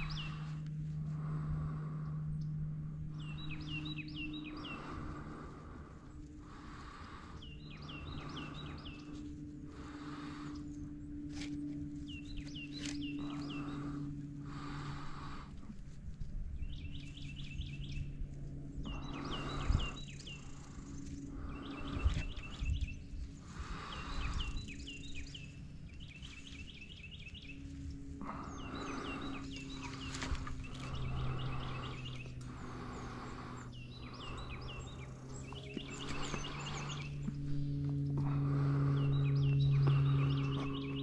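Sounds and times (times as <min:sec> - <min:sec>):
steady low hum: 0:00.0 - 0:41.0
songbird singing trilled phrases: 0:33.7 - 0:37.3.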